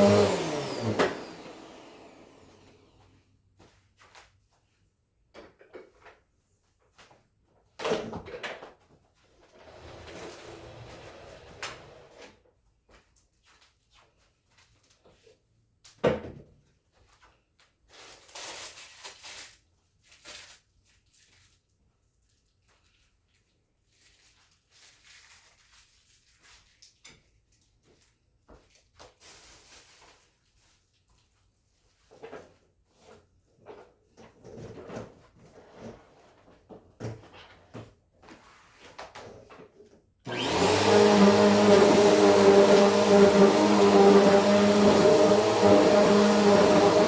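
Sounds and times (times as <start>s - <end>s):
vacuum cleaner running: 0.0s - 3.2s, 9.6s - 12.2s, 40.3s - 47.0s.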